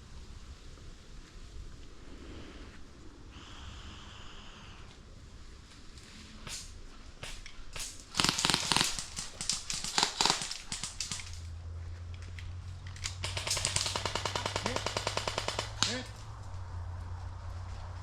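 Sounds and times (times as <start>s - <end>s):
airsoft gunfire: 7.2s - 11.5s, 13.1s - 16.2s.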